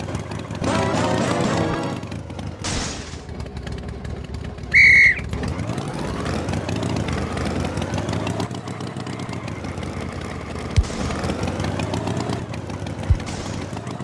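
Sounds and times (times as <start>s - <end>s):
cartoon tractor engine running: 0.0s - 14.0s
high whistle-like toot: 4.7s - 5.3s.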